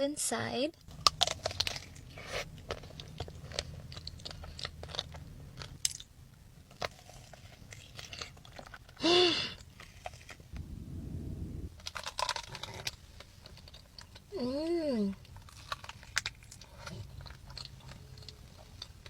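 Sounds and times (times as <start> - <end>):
chewing crunchy dessert: 0.8 - 9.0, 12.0 - 19.0
low rumble: 10.4 - 12.0.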